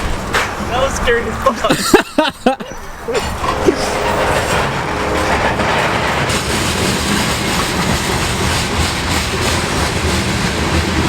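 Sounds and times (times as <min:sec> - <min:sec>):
train wheels rumbling on rails: 0:00.0 - 0:11.0
faint train squeal: 0:02.6 - 0:09.8.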